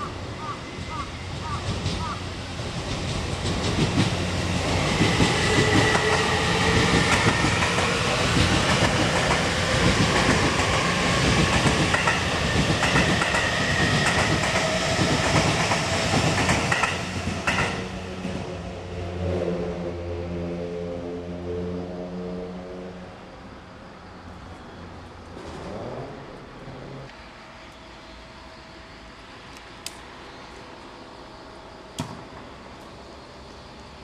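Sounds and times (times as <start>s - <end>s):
train wheels clattering: 0.8s - 18.0s.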